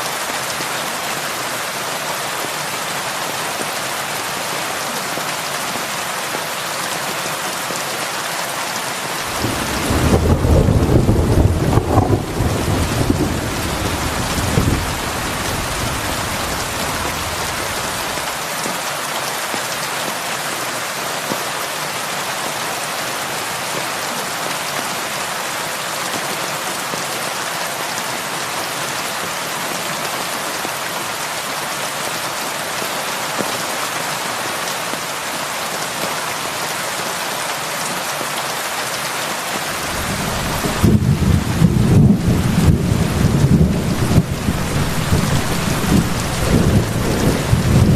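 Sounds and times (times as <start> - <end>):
heavy rain hissing: 8.6 - 19.0, 39.4 - 47.9
thunder rumbling: 9.3 - 18.2, 39.8 - 47.9.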